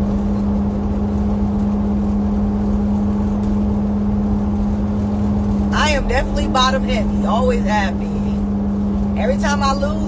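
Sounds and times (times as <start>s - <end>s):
low rumble: 0.0s - 10.0s
machine hum: 0.0s - 10.0s.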